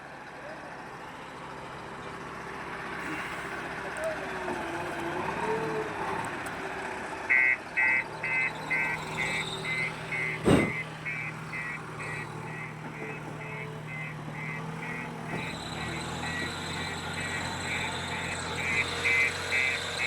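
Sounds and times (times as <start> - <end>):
engine running: 0.0 - 20.0
reversing alarm beeping: 7.3 - 20.0.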